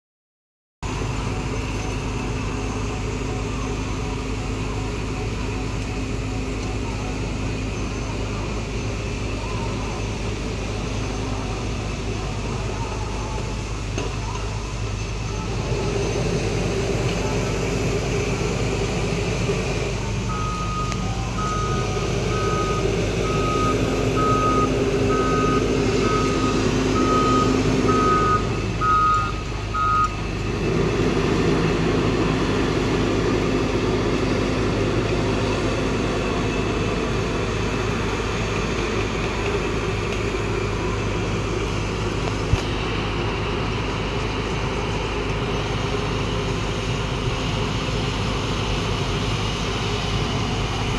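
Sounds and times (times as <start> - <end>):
heavy vehicle engine running: 0.8 - 50.9
reversing alarm beeping: 20.2 - 30.3.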